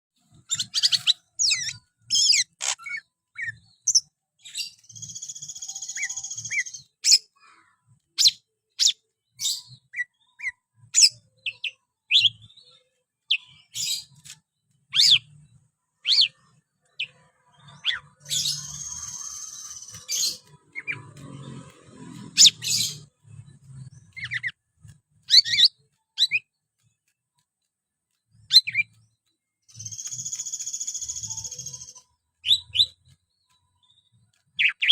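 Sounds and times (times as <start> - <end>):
bird singing whistled notes: 0.4 - 7.3, 14.9 - 15.4, 16.0 - 21.0, 25.2 - 26.5, 28.4 - 34.9
buzzy rasping bird phrases: 0.5 - 3.7.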